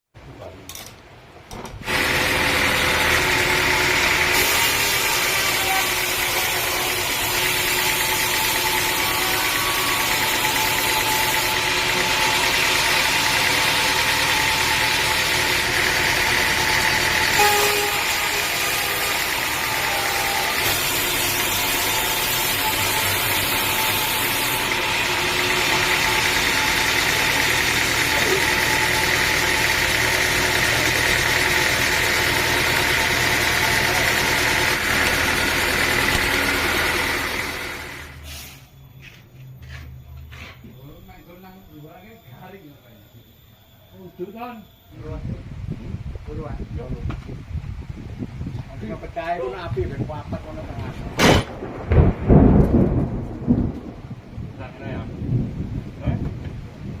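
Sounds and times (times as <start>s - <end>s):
engine running steadily: 1.8s - 38.2s.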